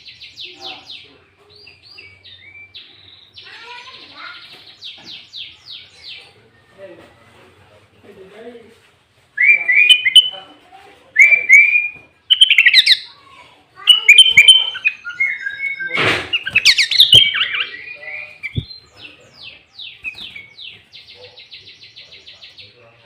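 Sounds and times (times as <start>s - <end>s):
bird singing bubbly whistles: 13.9s - 18.8s.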